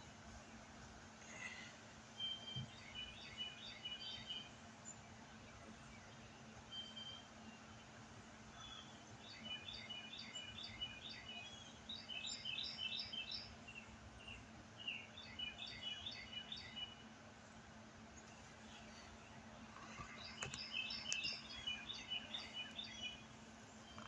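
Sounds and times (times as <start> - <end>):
faint low hum: 0.0 - 24.0
songbird singing: 0.0 - 24.0.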